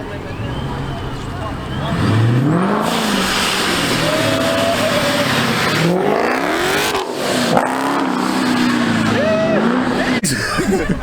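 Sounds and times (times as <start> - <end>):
car engine revving: 0.0 - 10.2
loud rushing noise: 2.1 - 9.3.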